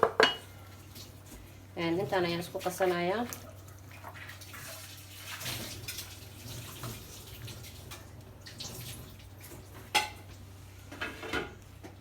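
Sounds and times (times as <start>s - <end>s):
wet stirring in a bowl: 0.9s - 9.7s.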